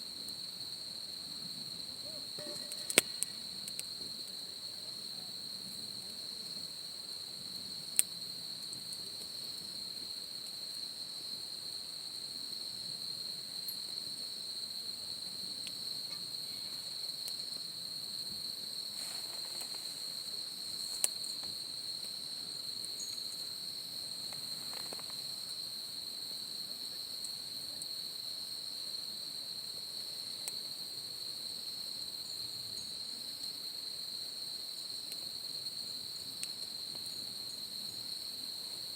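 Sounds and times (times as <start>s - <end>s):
crickets trilling: 0.0s - 38.9s
sharp pops: 2.4s - 3.9s.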